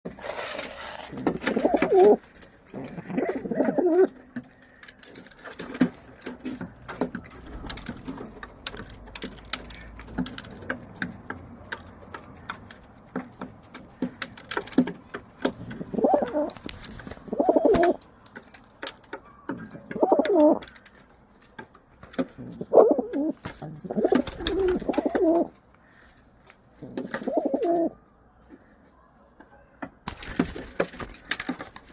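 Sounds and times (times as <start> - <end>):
pigeon cooing: 1.0 - 4.3, 15.8 - 16.6, 17.2 - 18.0, 19.8 - 20.7, 22.4 - 25.5, 26.8 - 28.0.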